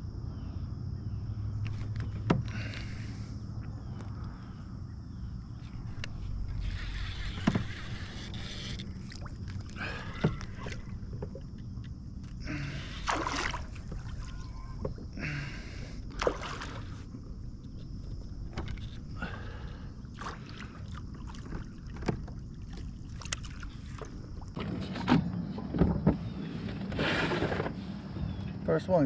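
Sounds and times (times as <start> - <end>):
kayak paddle swishing through water: 5.6 - 11.6, 12.8 - 14.8.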